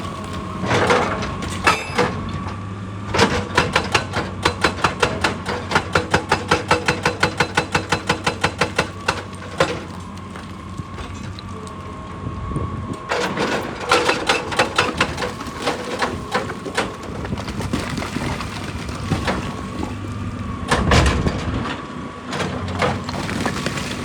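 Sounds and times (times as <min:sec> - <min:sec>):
excavator engine running: 0:00.0 - 0:24.0
rock cracking and clattering: 0:13.1 - 0:20.0, 0:22.6 - 0:24.0.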